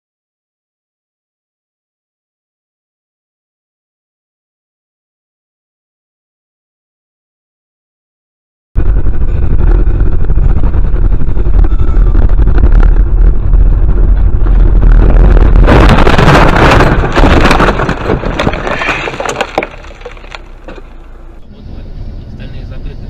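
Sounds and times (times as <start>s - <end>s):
vehicle road rumble: 8.8s - 23.0s
cracks and rattles: 12.4s - 21.2s
car crash impact: 15.6s - 21.2s.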